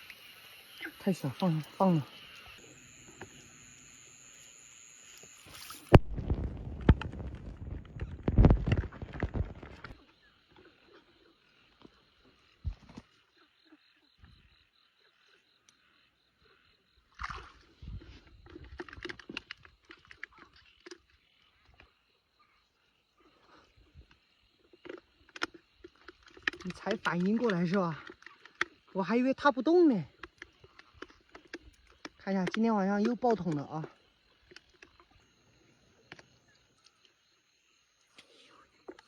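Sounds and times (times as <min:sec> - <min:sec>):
high-pitched insect chirring: 0:00.0 - 0:06.0
water splashing and sloshing: 0:05.0 - 0:13.2, 0:17.0 - 0:22.0, 0:23.2 - 0:35.4.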